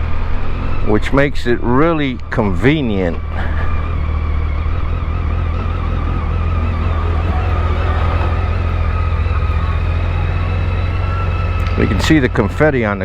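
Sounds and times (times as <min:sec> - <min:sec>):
motorcycle engine idling: 0:03.2 - 0:13.0.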